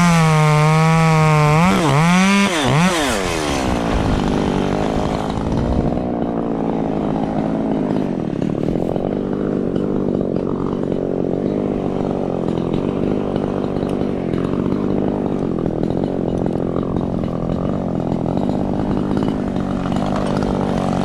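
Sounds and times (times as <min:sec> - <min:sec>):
chainsaw running steadily: 0:00.0 - 0:21.0.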